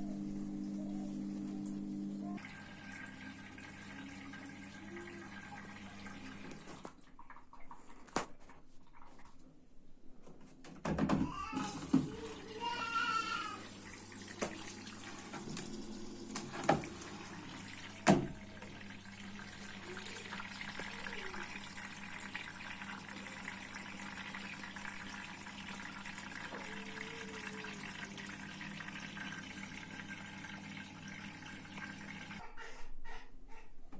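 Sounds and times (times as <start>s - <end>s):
low machine hum: 0.0s - 6.4s
water filling washing machine: 0.0s - 8.1s, 11.0s - 32.5s.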